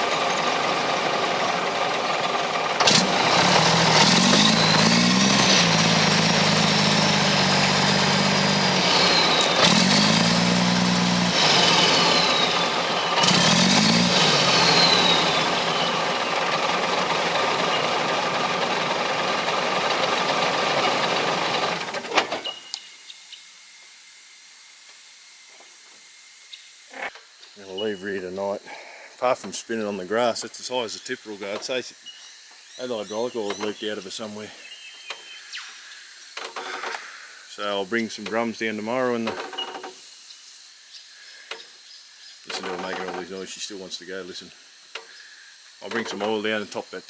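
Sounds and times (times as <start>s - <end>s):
diesel engine revving: 0.0s - 22.4s, 42.5s - 43.4s
hydraulic whine: 0.0s - 22.7s, 42.5s - 43.4s
faint hiss: 22.4s - 47.0s.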